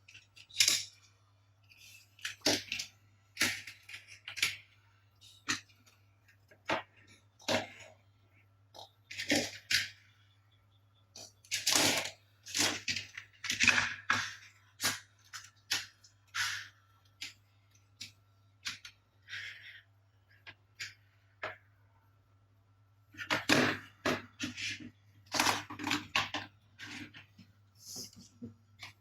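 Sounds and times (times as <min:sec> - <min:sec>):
toy cars knocking together: 0:23.2 - 0:27.1.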